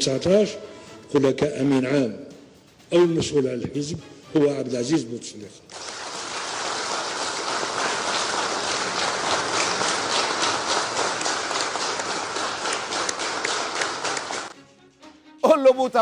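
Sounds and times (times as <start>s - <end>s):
crowd applauding: 5.7s - 14.6s.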